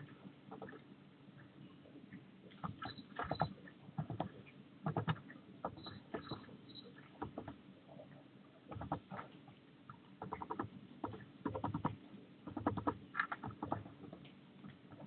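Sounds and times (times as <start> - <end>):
bird beak tapping and scratching: 0.5 - 0.8, 2.5 - 6.5, 7.1 - 7.6, 8.7 - 15.0
faint high bird chirps: 2.8 - 3.6, 5.8 - 7.0.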